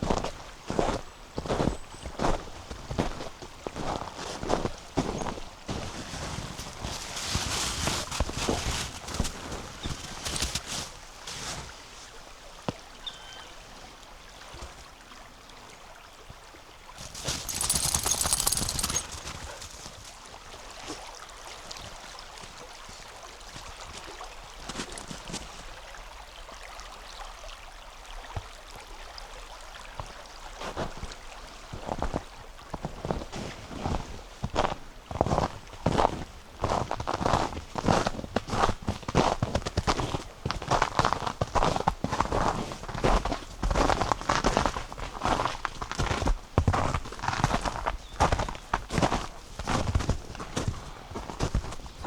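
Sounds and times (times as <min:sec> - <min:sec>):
footsteps crunching on snow: 0:00.1 - 0:11.7, 0:17.0 - 0:20.1, 0:33.3 - 0:52.0
river flowing: 0:17.0 - 0:21.6.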